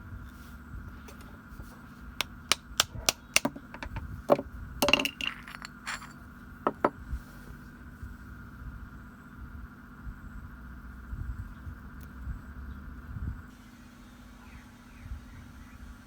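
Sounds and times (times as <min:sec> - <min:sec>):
faint steady hum: 0:00.0 - 0:16.0
metal parts and tools clinking: 0:03.3 - 0:06.9.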